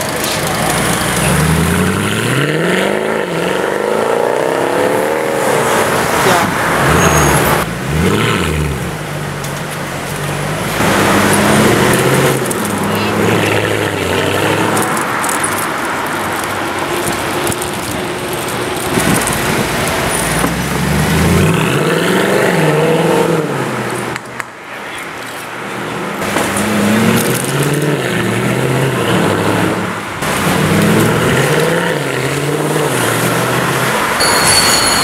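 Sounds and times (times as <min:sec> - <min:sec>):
car engine revving and accelerating: 0:00.0 - 0:15.6, 0:18.8 - 0:24.2, 0:26.2 - 0:34.2.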